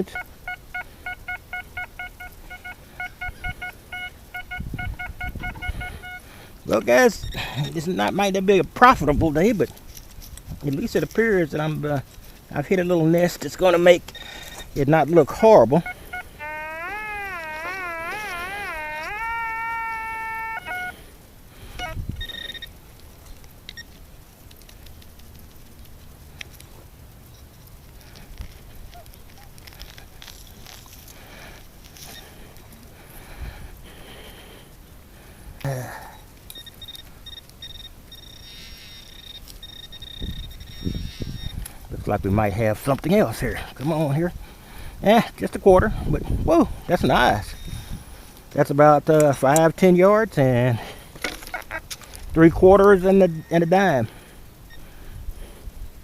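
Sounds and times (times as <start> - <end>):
metal detector short beeps: 0.0 - 6.2, 15.8 - 20.9, 21.8 - 22.7, 36.5 - 41.5
faint clicks: 22.2 - 31.2.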